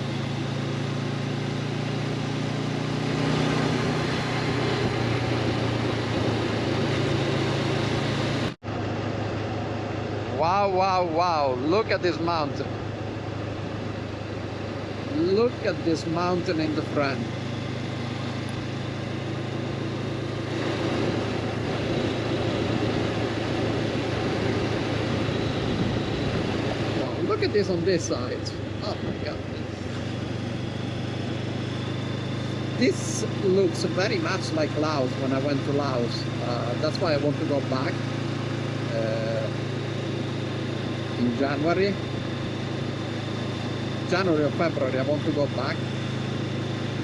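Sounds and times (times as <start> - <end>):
motorcycle engine cruising: 0.0 - 47.0
wind and road noise: 0.0 - 47.0
wind noise: 4.2 - 8.6, 20.0 - 31.4.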